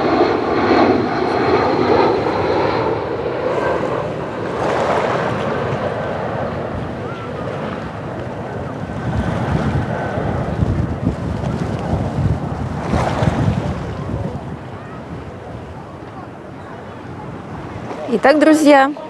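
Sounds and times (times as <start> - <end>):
airliner passing overhead: 0.0 - 19.0.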